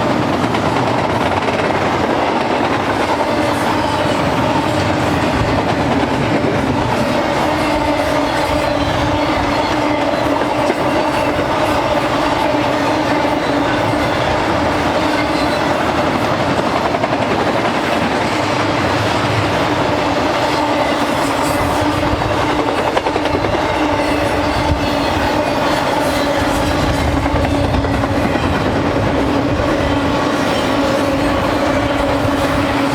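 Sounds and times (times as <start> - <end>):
train wheels clickety-clack: 0.0 - 32.9.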